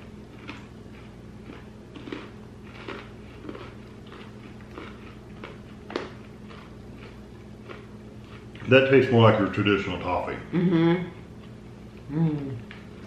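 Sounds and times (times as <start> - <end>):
chewing toffee: 0.0 - 8.7
faint steady hum: 0.0 - 13.0.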